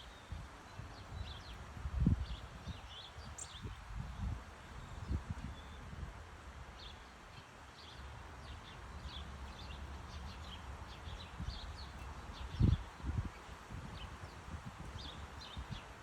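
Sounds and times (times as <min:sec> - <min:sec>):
small birds chirping: 0:06.8 - 0:15.9.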